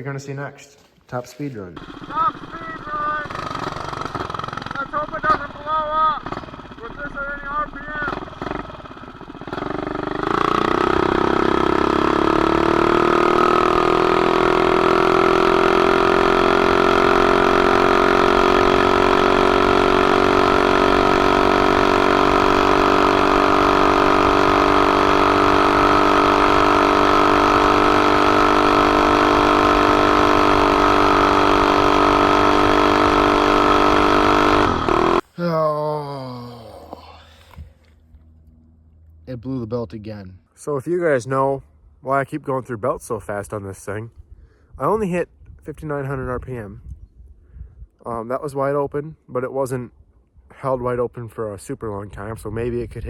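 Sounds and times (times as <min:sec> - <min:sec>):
single-cylinder engine at full throttle: 0:01.8 - 0:35.3.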